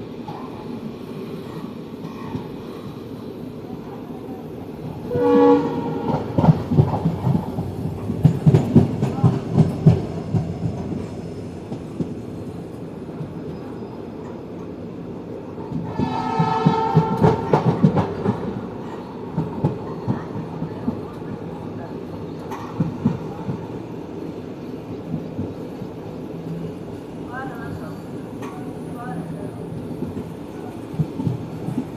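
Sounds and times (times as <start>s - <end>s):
train horn: 5.0s - 6.4s, 15.8s - 17.6s.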